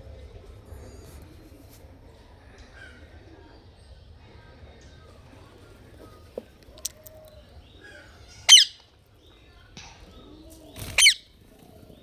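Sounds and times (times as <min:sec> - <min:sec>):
parrot squawking: 0:08.5 - 0:08.8, 0:11.0 - 0:11.2.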